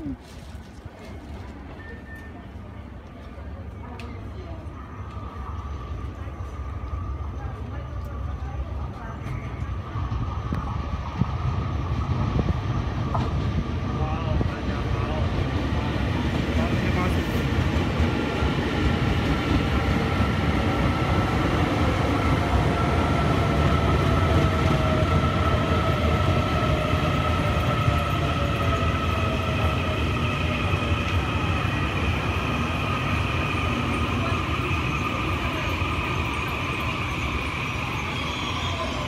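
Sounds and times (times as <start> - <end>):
train wheels rumbling on track: 0.1 - 39.0
train whine falling in pitch: 26.2 - 39.0.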